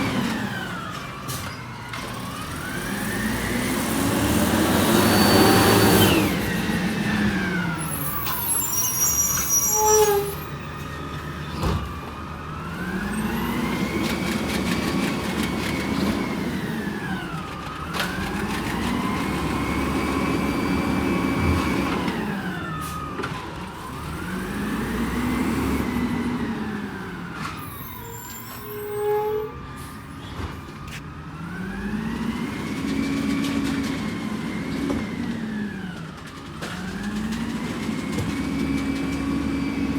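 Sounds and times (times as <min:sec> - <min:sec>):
garbage truck engine revving: 0:01.9 - 0:08.6, 0:30.9 - 0:39.9.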